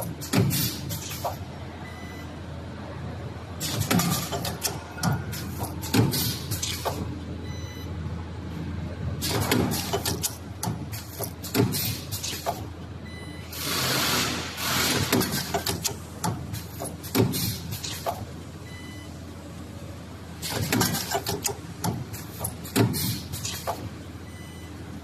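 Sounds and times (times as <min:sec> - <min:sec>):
sharp mechanical clacks and knocks: 0:00.0 - 0:01.4, 0:03.6 - 0:07.1, 0:09.2 - 0:12.7, 0:13.6 - 0:18.3, 0:20.4 - 0:24.0.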